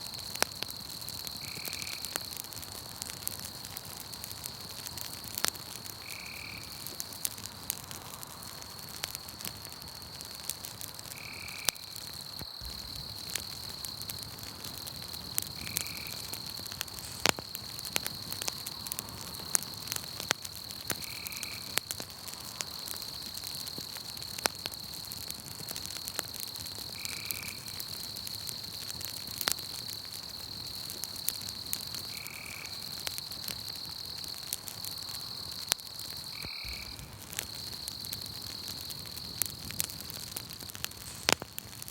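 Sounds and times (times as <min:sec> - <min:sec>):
campfire crackling: 0:00.0 - 0:41.9
high-pitched insect trill: 0:11.2 - 0:14.1, 0:30.5 - 0:39.6.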